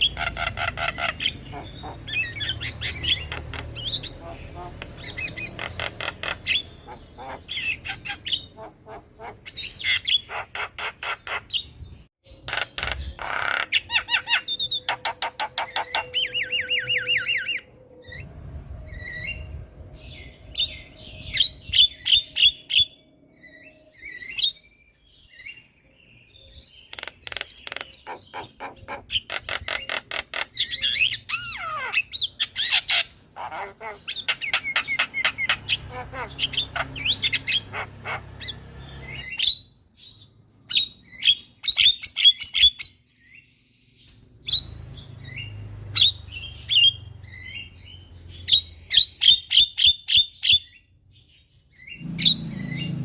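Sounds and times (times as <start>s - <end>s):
bird chattering and squawking: 0.0s - 18.3s, 26.5s - 43.0s, 51.7s - 53.0s.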